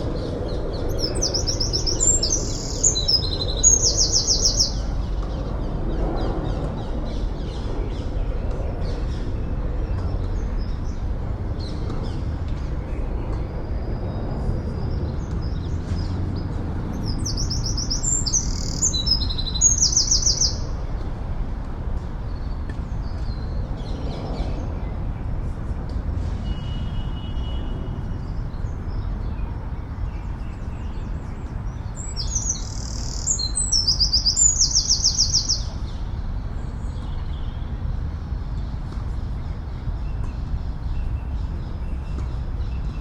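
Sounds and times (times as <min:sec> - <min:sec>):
songbird singing trills: 0:00.0 - 0:05.7, 0:17.0 - 0:20.8, 0:30.4 - 0:36.0
distant city traffic: 0:00.0 - 0:43.0.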